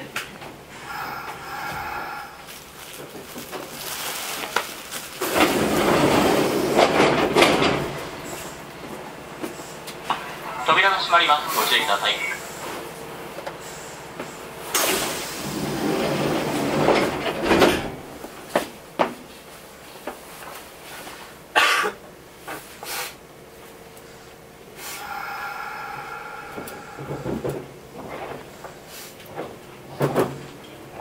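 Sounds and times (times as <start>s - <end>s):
steady pitched hum: 0.6s - 3.5s, 23.6s - 28.9s
knocks and clunks inside train: 5.2s - 13.6s, 14.2s - 19.3s, 25.9s - 31.0s.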